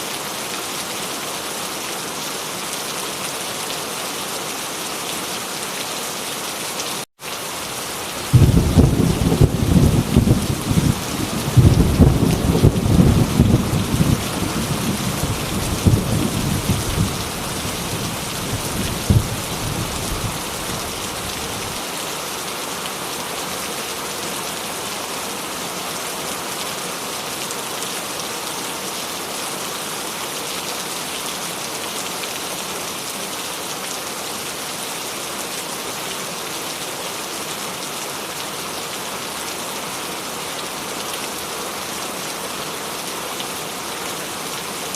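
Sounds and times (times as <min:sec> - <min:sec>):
heavy rain falling: 0:00.0 - 0:44.9
thunder rumbling: 0:08.2 - 0:21.8.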